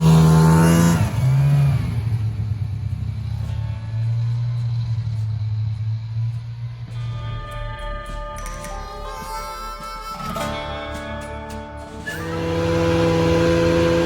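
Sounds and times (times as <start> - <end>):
small vehicle engine revving: 0.0 - 7.3, 12.0 - 14.0.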